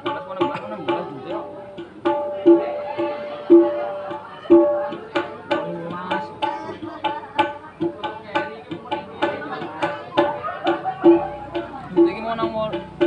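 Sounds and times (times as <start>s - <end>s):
hand drum playing: 0.0s - 13.0s.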